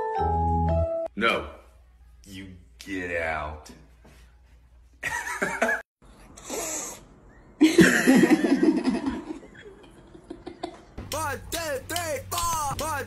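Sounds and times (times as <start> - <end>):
people laughing: 7.6 - 11.0.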